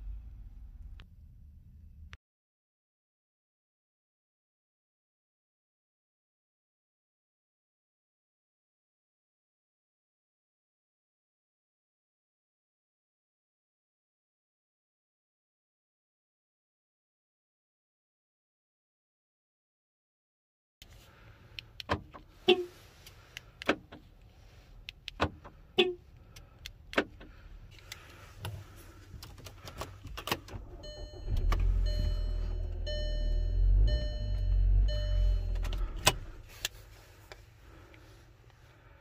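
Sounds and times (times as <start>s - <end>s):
key and ignition switch clicks: 24.8s - 25.5s
car engine running: 27.1s - 38.7s
dashboard chime beeping: 30.7s - 35.9s.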